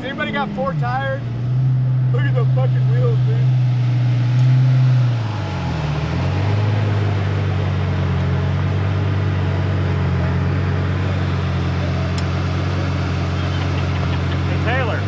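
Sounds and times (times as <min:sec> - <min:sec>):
engine idling: 0:05.1 - 0:15.0.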